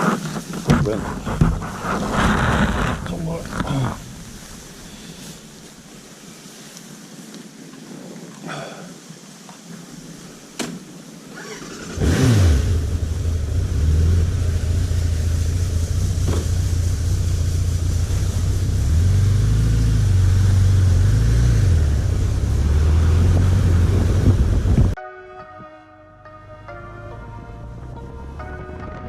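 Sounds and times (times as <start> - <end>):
motorcycle engine starting and running: 11.3 - 25.0.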